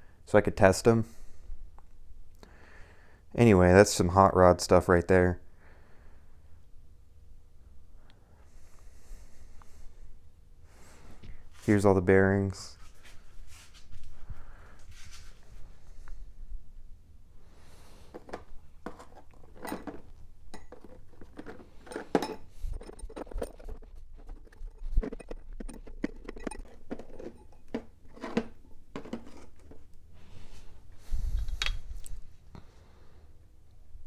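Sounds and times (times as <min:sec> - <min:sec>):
small metal parts clinking: 0:18.1 - 0:29.8.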